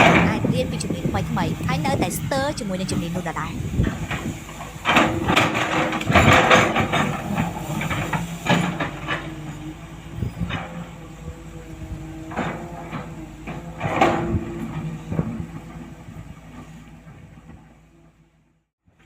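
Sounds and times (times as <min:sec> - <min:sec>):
truck engine humming: 0:00.0 - 0:04.9
hissing and clanking bursts: 0:04.2 - 0:09.3.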